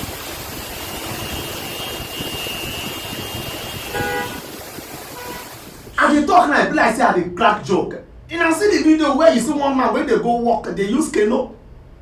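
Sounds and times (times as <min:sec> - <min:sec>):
rushing street noise: 0:00.0 - 0:12.0
car horn toot: 0:00.6 - 0:04.5, 0:05.1 - 0:05.6.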